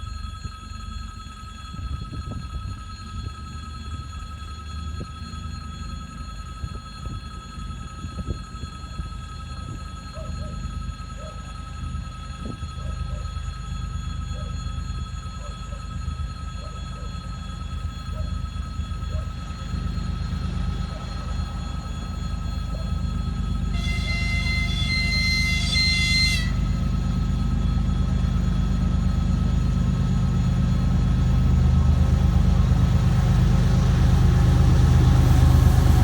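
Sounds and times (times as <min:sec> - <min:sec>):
diesel locomotive rumble: 0:00.0 - 0:36.0
high whine: 0:01.1 - 0:36.0.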